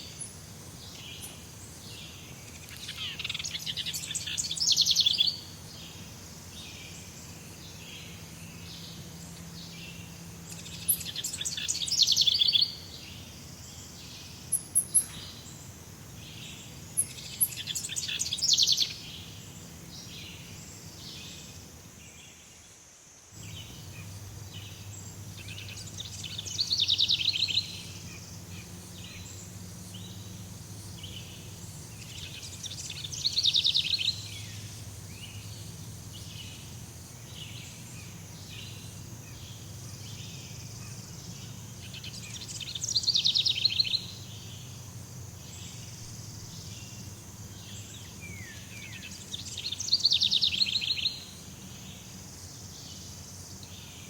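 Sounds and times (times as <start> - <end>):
high insect hiss: 0.0 - 54.0
bird rapid pulsing trill: 9.6 - 13.0, 23.4 - 51.3.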